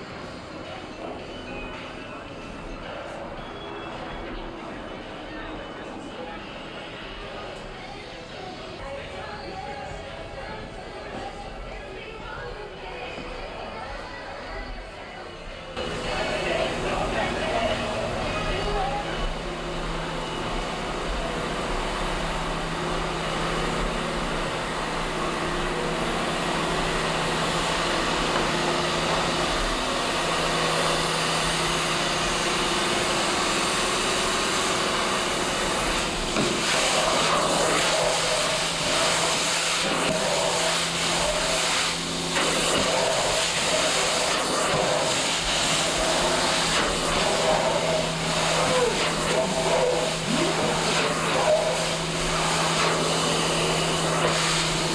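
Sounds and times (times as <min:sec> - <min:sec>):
faint voices: 0:00.0 - 0:54.9
machine drone: 0:14.5 - 0:54.9.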